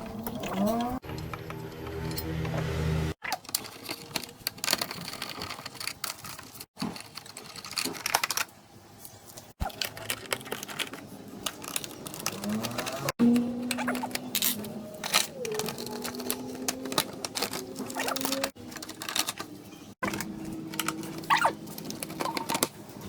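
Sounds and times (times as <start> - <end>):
tools clicking on metal parts: 3.3 - 8.5, 9.6 - 22.9.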